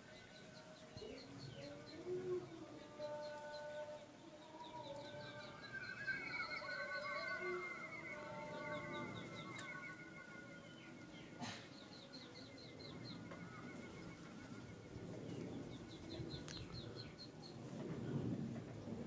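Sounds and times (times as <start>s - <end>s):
small birds chirping: 0.0s - 17.8s
faint warbling trill: 5.5s - 11.4s.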